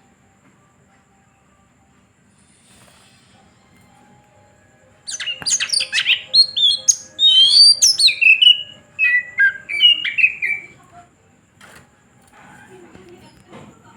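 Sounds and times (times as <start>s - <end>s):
bird singing whistles and calls: 5.1s - 10.8s.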